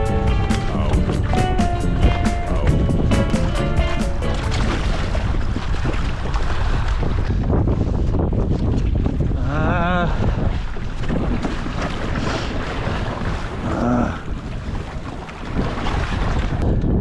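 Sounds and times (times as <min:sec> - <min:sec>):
wavering pitched sounds: 0:00.0 - 0:05.3
water and hull noise: 0:00.0 - 0:17.0
wind buffeting microphone: 0:00.0 - 0:17.0.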